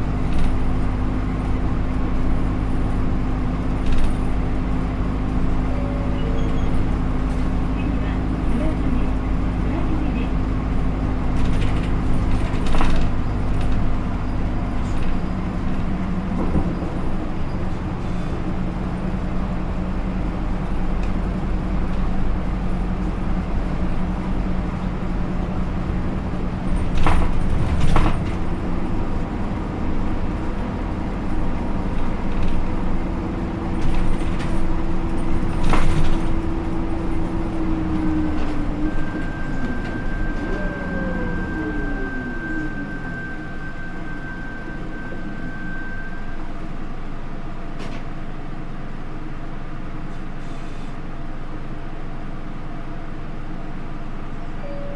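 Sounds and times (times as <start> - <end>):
bus engine running: 0.0 - 54.9
rising tone: 37.8 - 46.3.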